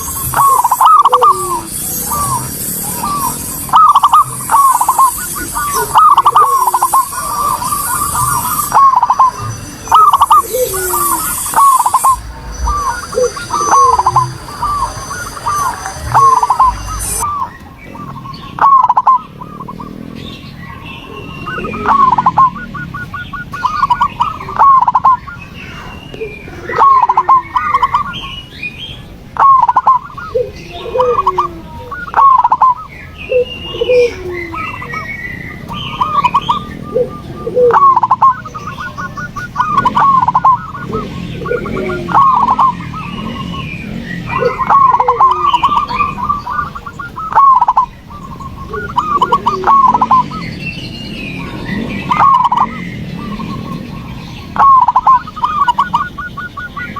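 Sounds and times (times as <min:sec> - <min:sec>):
lower-pitched bird answering: 0:00.0 - 0:17.5
doves cooing: 0:00.0 - 0:56.9
small birds chirping: 0:00.0 - 0:56.9.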